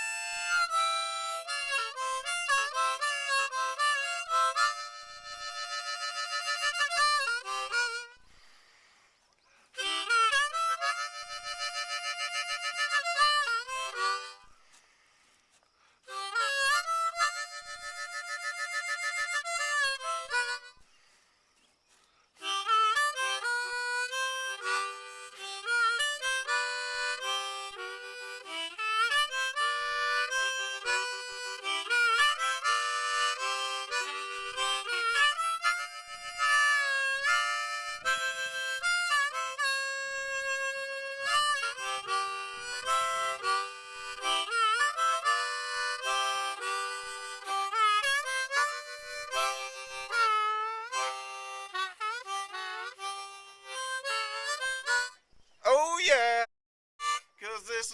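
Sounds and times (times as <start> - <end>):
blues harmonica: 0.0 - 55.8, 57.0 - 57.9.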